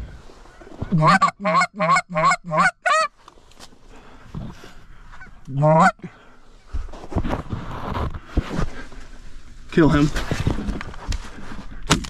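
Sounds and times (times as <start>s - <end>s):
goose honking: 0.9s - 3.1s, 5.6s - 6.0s.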